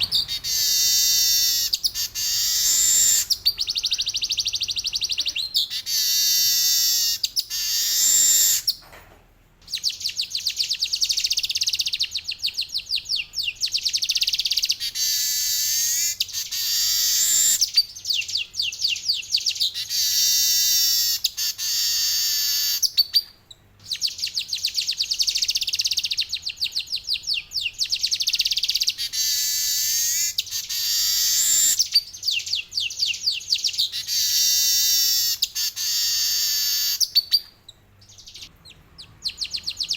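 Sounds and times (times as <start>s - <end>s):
bird singing buzzy chattering rolls: 0.0s - 6.4s.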